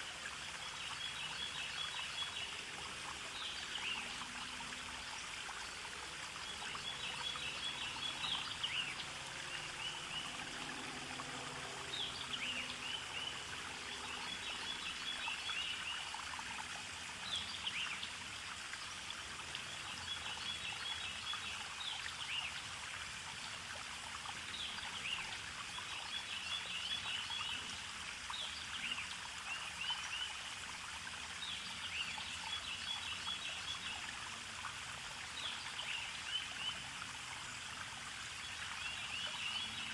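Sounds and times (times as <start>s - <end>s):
stream running water: 0.0s - 39.9s
songbird singing: 6.4s - 16.1s.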